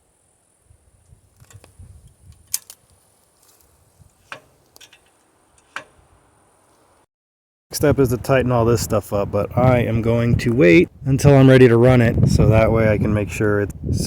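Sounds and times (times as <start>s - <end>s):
metal tools clinking: 4.2s - 5.9s.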